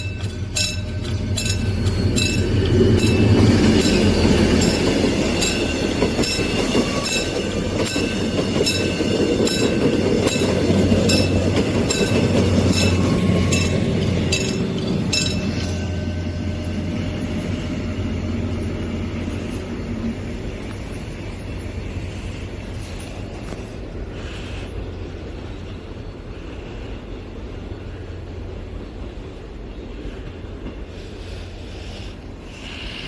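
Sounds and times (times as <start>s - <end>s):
crossing warning bell ringing: 0.0s - 23.5s
train rumbling past: 0.0s - 33.0s.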